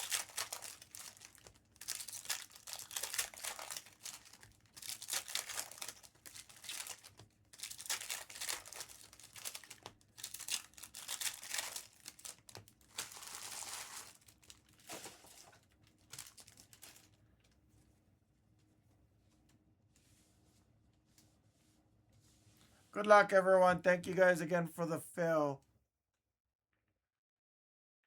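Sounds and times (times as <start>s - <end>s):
plastic wrappers crinkling and tearing: 0.0s - 17.2s.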